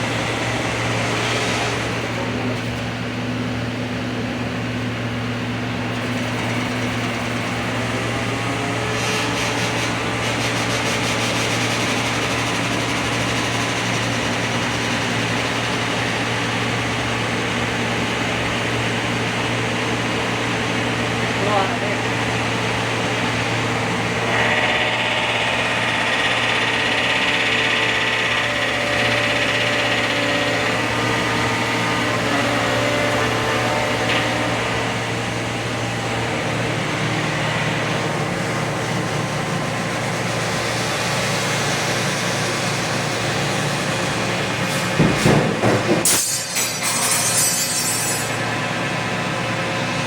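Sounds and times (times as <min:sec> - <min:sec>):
hydraulic pump humming: 0:00.0 - 0:47.4
sharp clanks: 0:44.5 - 0:48.5.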